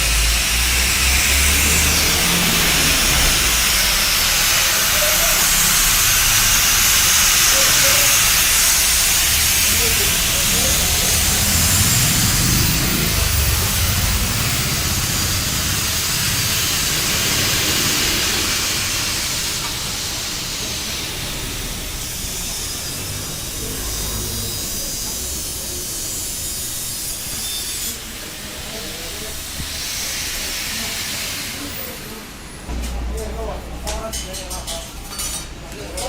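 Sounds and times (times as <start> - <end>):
steady hiss: 0.0 - 32.3
low rumble: 8.9 - 19.0.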